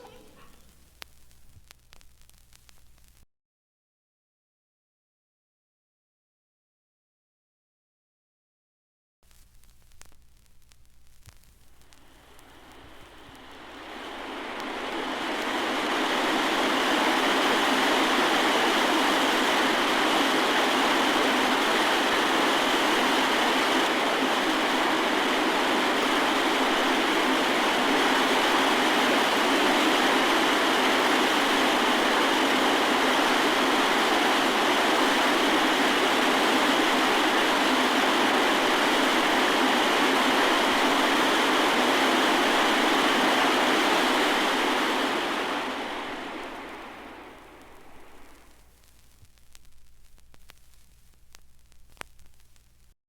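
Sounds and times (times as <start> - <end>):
steady rushing noise: 11.8 - 50.6.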